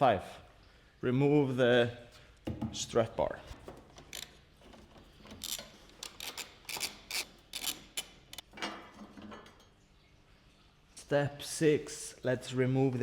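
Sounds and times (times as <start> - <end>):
ratchet wrench clicking: 4.1 - 4.4, 5.4 - 8.4.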